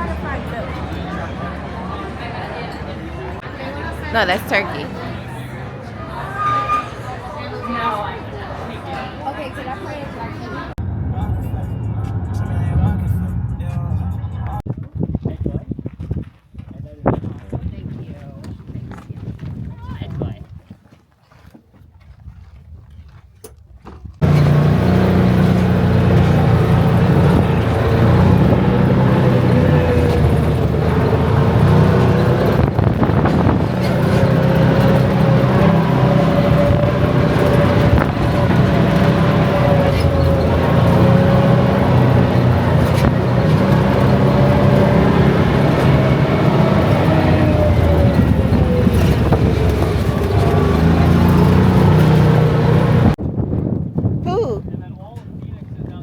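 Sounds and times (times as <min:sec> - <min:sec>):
vehicle engine droning: 0:00.0 - 0:14.7, 0:24.2 - 0:53.2.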